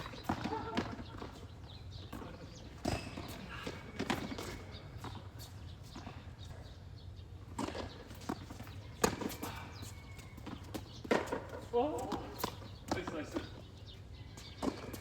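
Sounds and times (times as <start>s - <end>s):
ball bouncing on court: 0.0s - 1.4s
tennis ball struck by rackets: 11.0s - 13.5s.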